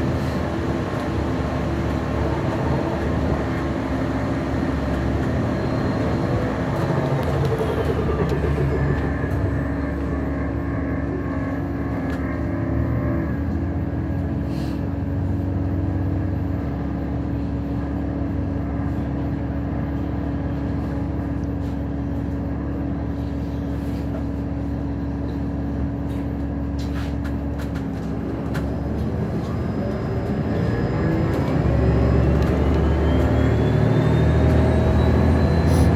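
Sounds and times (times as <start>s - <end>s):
rising whine: 0.0s - 13.9s, 29.5s - 35.9s
bus engine rumble: 0.0s - 35.9s.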